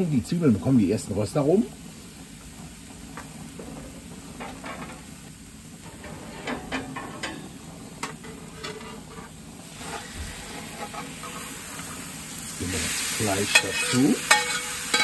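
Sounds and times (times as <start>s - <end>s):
onions sizzling on griddle: 0.0s - 15.0s
metal scraper clinking on pan: 13.5s - 15.0s.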